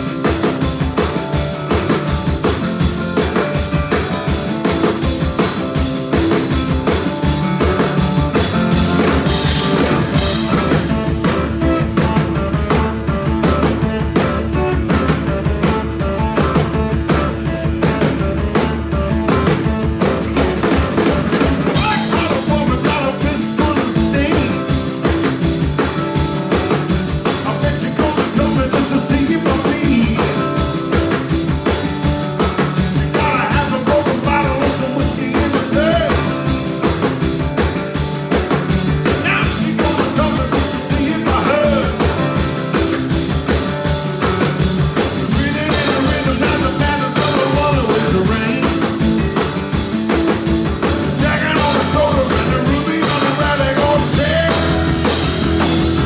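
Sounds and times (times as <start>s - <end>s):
blues band playing: 0.0s - 56.0s
drums steady beat: 0.0s - 56.0s
guitar: 0.0s - 56.0s.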